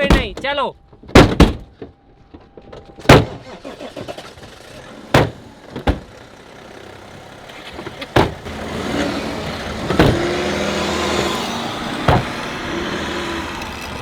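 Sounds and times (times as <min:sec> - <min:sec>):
diesel car engine running: 0:03.4 - 0:14.0.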